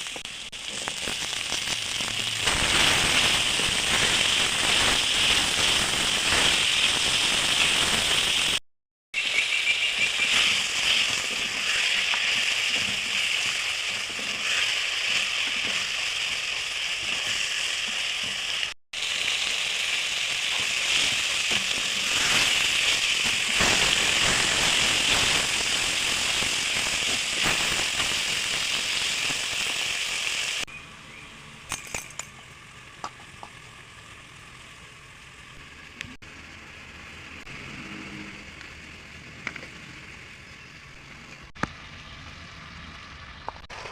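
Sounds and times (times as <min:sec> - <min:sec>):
food sizzling in hot oil: 0:00.0 - 0:08.6, 0:09.2 - 0:30.8.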